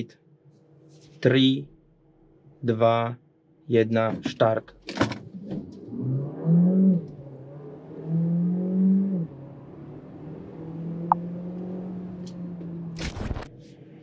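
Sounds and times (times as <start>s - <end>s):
car engine accelerating: 5.2s - 14.0s.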